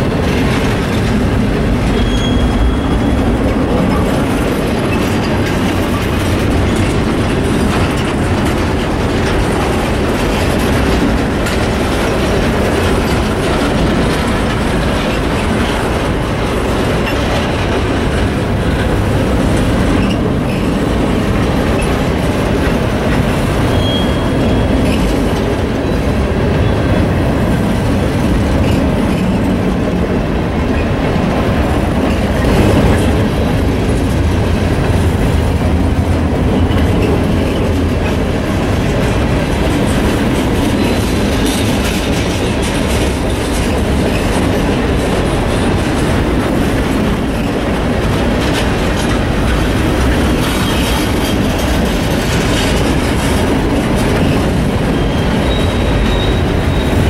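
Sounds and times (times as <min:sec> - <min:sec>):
train wheels rumbling and clattering: 0:00.0 - 0:57.0
high wheel squeal: 0:01.8 - 0:03.4, 0:23.6 - 0:25.1, 0:54.2 - 0:57.0.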